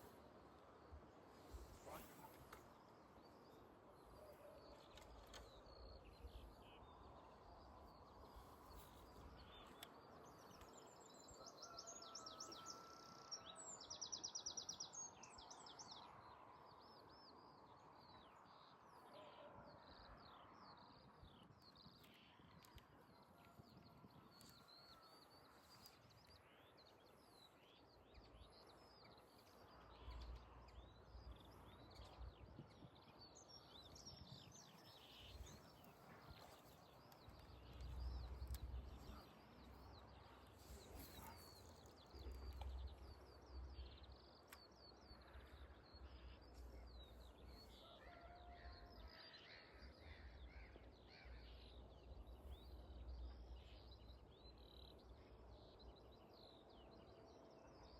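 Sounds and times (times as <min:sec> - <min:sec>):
small birds chirping: 0:21.2 - 0:57.9.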